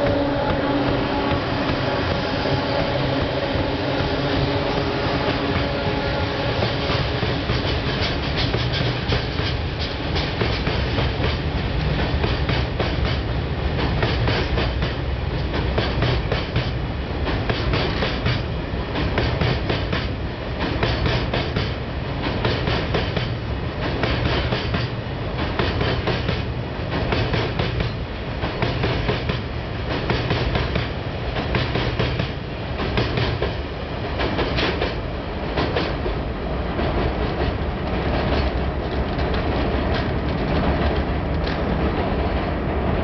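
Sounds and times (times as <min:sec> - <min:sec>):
freight train rumbling over bridge: 0:00.0 - 0:43.0
wheels clacking over rail joints: 0:36.8 - 0:42.5.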